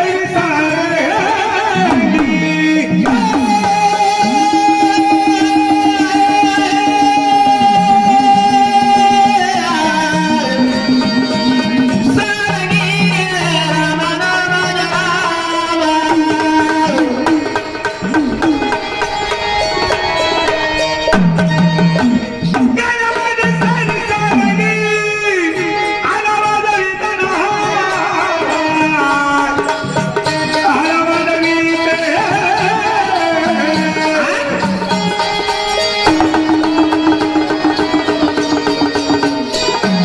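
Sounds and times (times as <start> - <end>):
hand-drum rhythm: 0.0 - 40.0
melody of gliding notes: 16.0 - 26.1.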